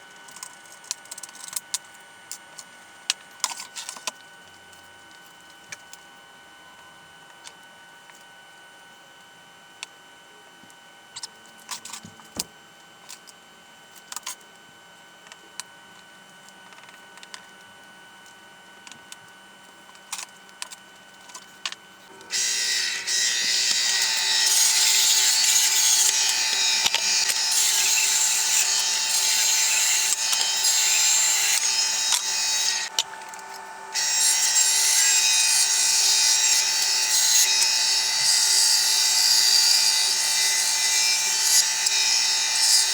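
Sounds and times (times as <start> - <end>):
power tool cutting wood: 22.1 - 42.9
power tool motor running: 22.1 - 42.9.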